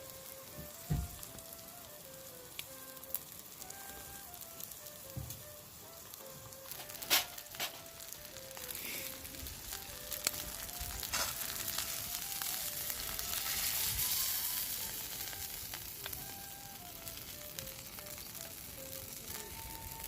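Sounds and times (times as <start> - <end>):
meat sizzling over fire: 0.0 - 20.0
soft music melody: 0.0 - 20.0
sharp fire pops: 0.6 - 1.5, 4.4 - 18.6.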